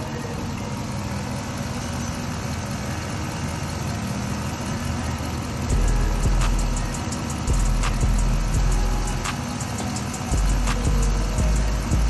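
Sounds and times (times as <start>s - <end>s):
car engine idling: 0.0s - 12.0s
loud low rumble: 5.7s - 9.3s.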